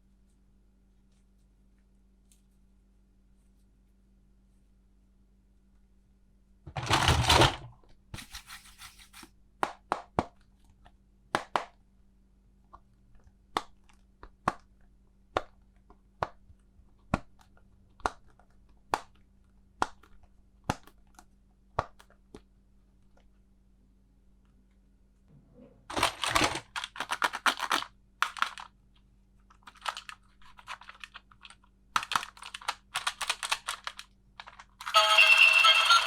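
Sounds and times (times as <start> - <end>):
plastic toy parts clicking: 26.0 - 28.7, 29.5 - 34.9.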